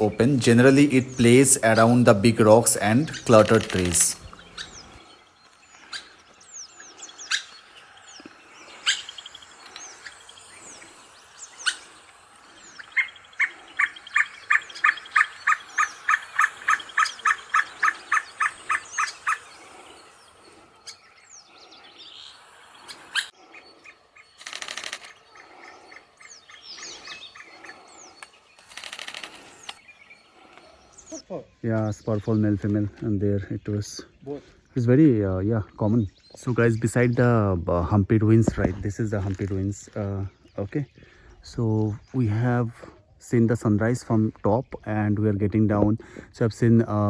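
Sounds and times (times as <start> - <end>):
spurfowl calling: 0.0 - 31.2
small birds chirping: 0.0 - 43.4.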